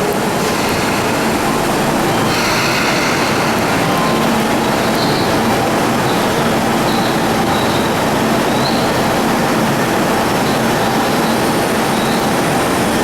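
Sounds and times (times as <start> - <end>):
train wheels rumbling on rail: 0.0 - 13.0
train wheels squeaking: 0.5 - 9.1.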